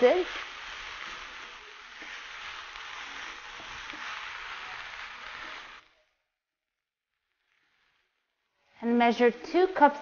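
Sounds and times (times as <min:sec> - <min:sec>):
wooden spoon scraping: 0:00.0 - 0:06.0
grains and onions sizzling in oil: 0:00.0 - 0:10.0.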